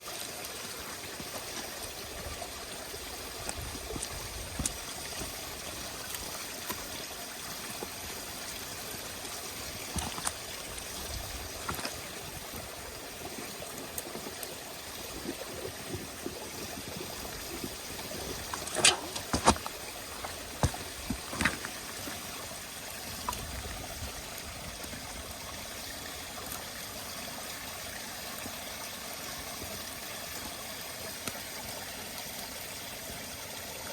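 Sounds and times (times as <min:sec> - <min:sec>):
campfire hissing and crackling: 0:00.0 - 0:33.9.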